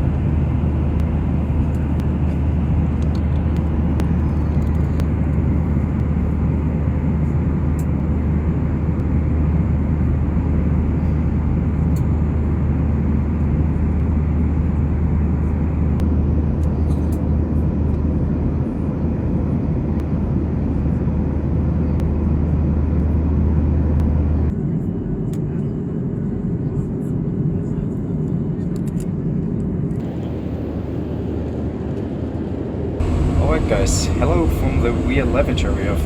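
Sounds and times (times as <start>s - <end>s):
jet engines droning: 0.0s - 24.5s, 29.8s - 36.0s
airflow rush in cabin: 0.0s - 36.0s
low hum: 30.0s - 36.0s.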